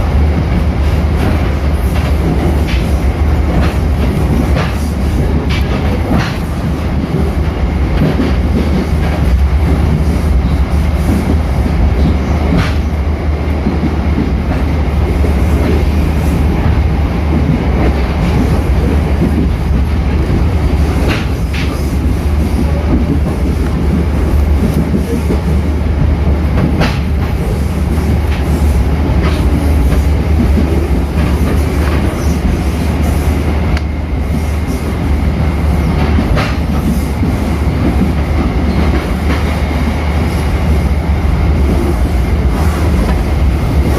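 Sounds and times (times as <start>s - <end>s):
train wheels rumbling on rails: 0.0s - 43.9s
sharp rail clicks: 21.0s - 22.1s.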